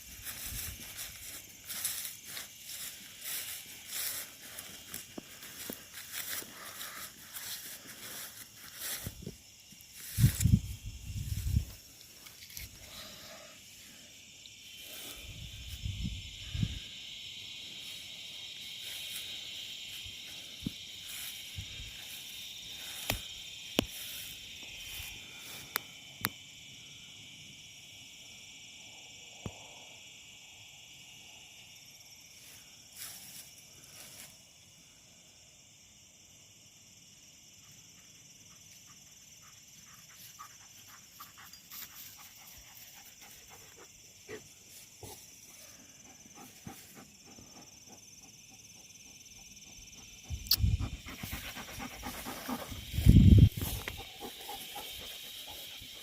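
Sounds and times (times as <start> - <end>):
footsteps on dry leaves: 0.0 - 9.4
insects singing: 0.0 - 56.0.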